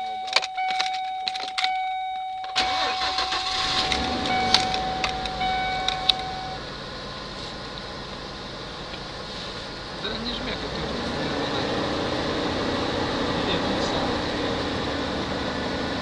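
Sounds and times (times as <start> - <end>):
high warning tone: 0.0 - 7.8
clicks and rattles: 0.2 - 1.8
engine starting and idling: 2.6 - 11.5.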